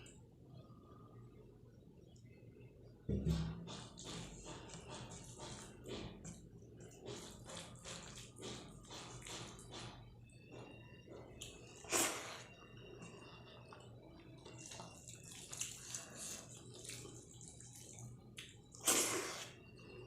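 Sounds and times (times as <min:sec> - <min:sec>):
loud wet eating noises: 0:03.8 - 0:10.0, 0:11.2 - 0:19.6
wet chewing and squishing: 0:04.0 - 0:10.0, 0:11.2 - 0:19.6.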